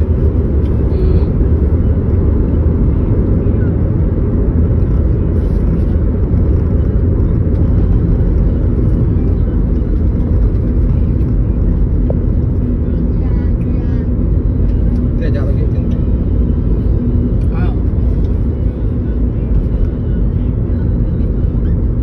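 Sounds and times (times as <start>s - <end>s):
car interior road and engine rumble: 0.0s - 22.0s.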